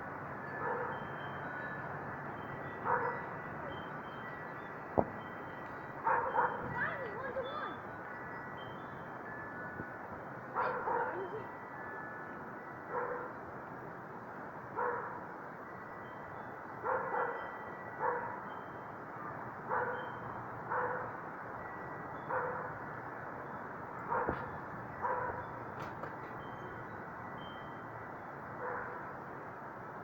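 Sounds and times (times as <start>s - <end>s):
dog barking: 0.6s - 1.0s, 2.9s - 3.2s, 6.0s - 6.6s, 10.6s - 11.2s, 12.9s - 13.3s, 14.8s - 15.2s, 16.8s - 17.4s, 18.0s - 18.4s, 19.7s - 20.0s, 20.7s - 21.1s, 22.3s - 22.7s, 24.1s - 25.4s, 28.6s - 29.0s.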